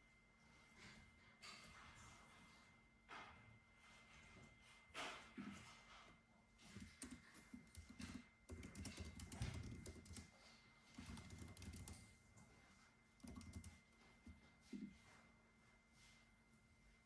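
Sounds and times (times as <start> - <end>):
computer keyboard typing: 6.7 - 10.3, 10.9 - 12.1, 13.2 - 14.4.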